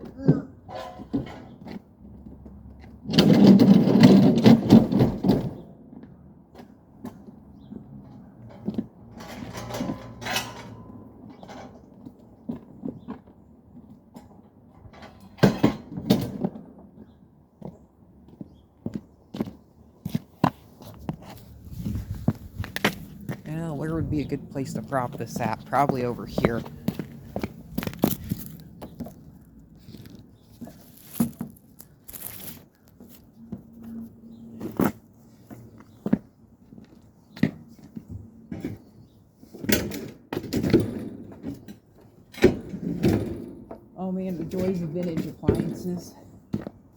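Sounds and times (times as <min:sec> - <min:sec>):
short rustle: 0:29.8 - 0:33.2.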